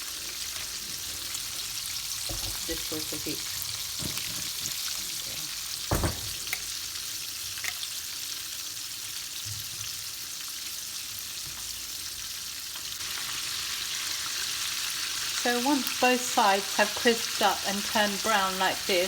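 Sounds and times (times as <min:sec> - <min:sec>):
chicken deep-frying in oil: 0:00.0 - 0:19.0
knock: 0:05.9 - 0:06.4.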